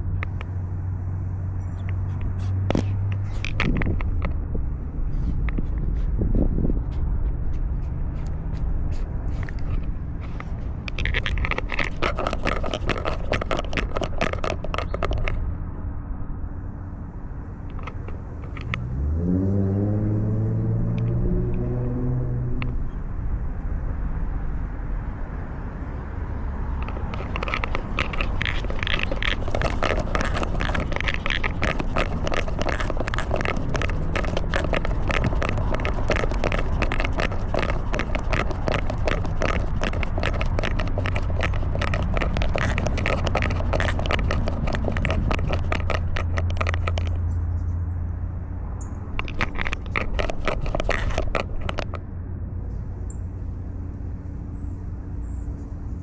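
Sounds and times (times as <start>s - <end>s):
collar crackling and scraping: 0.0s - 15.9s, 16.7s - 19.0s, 26.3s - 47.8s, 49.0s - 52.1s.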